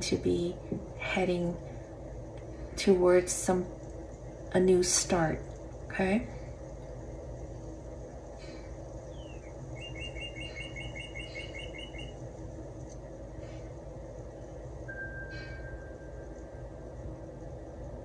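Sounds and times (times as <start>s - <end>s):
steady low hum: 0.0s - 18.0s
bird chirping and whistling: 9.1s - 12.2s.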